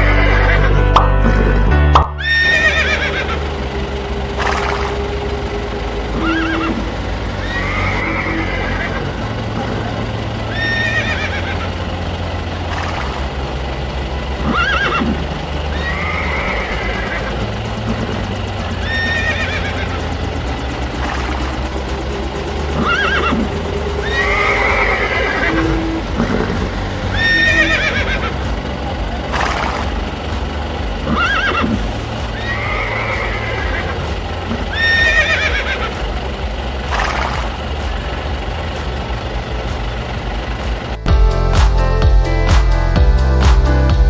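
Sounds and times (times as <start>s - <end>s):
horse whinnying: 0.0s - 0.7s, 2.2s - 3.4s, 6.2s - 6.8s, 7.4s - 9.1s, 10.5s - 11.6s, 14.4s - 17.2s, 18.8s - 19.8s, 22.8s - 26.4s, 27.1s - 28.3s, 31.1s - 31.8s, 32.4s - 34.0s, 34.7s - 36.0s
electronic music: 0.0s - 11.8s, 12.7s - 44.0s
steady low hum: 0.0s - 44.0s.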